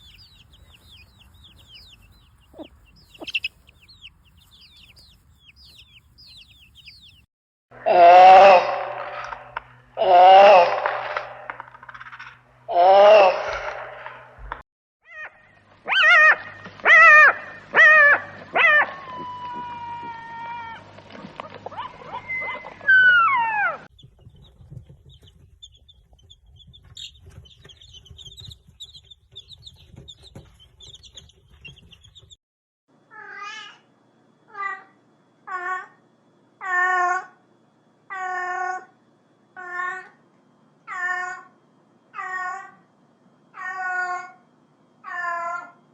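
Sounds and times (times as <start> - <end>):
faint high chirps: 0.0 - 7.3.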